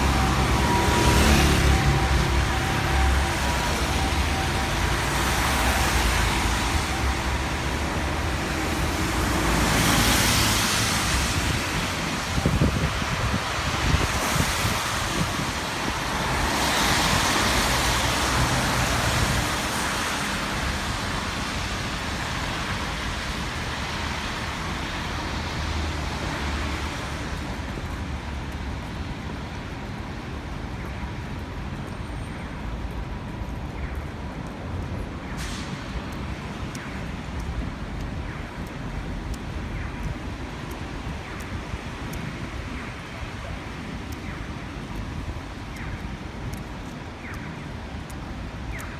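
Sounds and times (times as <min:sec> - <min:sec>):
vehicle passing with rushing hiss: 0:00.0 - 0:27.7
low rumble of traffic: 0:00.0 - 0:48.9.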